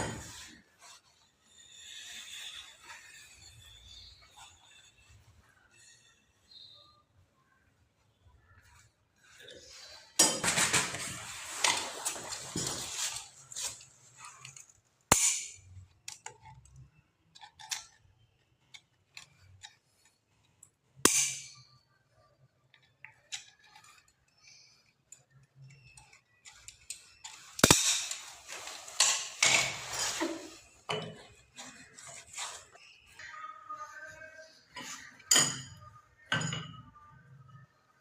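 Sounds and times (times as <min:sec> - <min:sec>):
scraping and rustling: 0:08.6 - 0:14.8, 0:25.6 - 0:35.3.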